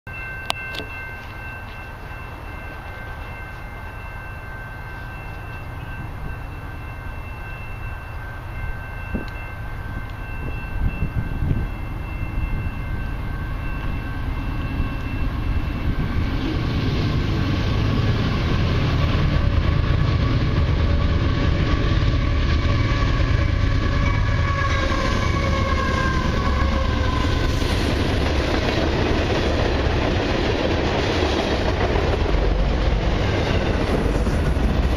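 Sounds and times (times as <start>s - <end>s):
freight train rumble: 0.1s - 34.9s
locomotive horn chord: 20.4s - 27.4s.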